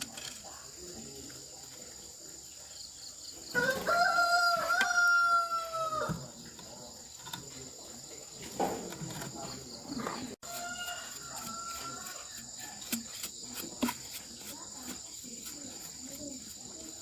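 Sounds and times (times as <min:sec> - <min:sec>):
rooster crowing: 0:03.5 - 0:06.3, 0:10.4 - 0:12.4.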